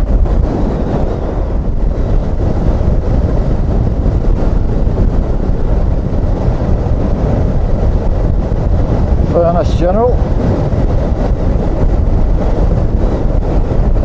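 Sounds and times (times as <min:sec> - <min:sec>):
wind rush on microphone: 0:00.0 - 0:14.0.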